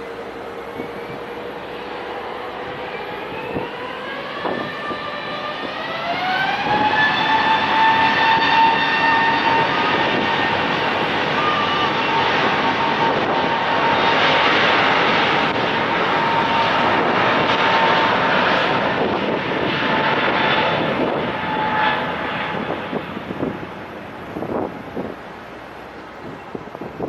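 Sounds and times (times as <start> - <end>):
jet engines roaring at takeoff: 0.0 - 27.0.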